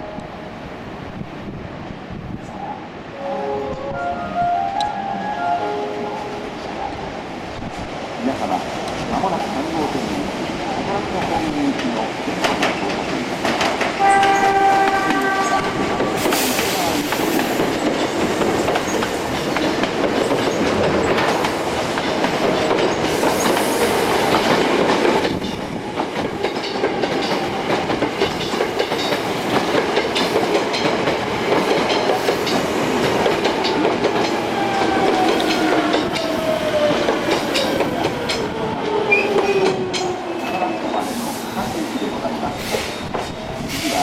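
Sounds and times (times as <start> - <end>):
wheels clacking over rail joints: 11.8 - 41.0.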